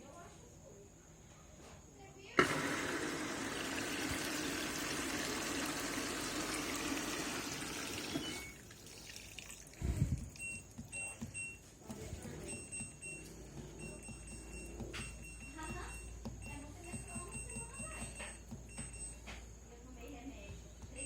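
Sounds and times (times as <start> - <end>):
water running: 2.4 - 17.0.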